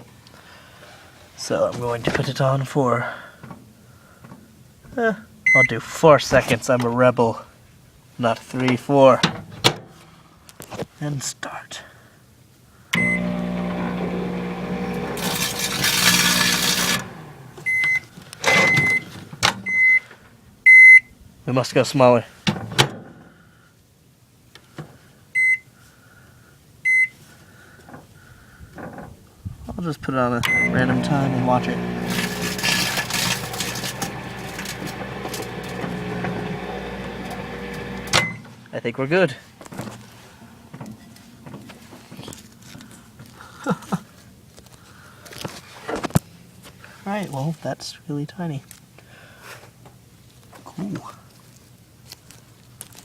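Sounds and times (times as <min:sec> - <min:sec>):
microwave oven beeps: 0:05.5 - 0:05.7, 0:13.0 - 0:20.0, 0:20.7 - 0:21.1, 0:25.4 - 0:25.7, 0:26.9 - 0:27.1, 0:30.5 - 0:38.5
microwave oven humming: 0:13.0 - 0:19.0, 0:30.5 - 0:38.5
plastic bag crackling: 0:31.6 - 0:36.0.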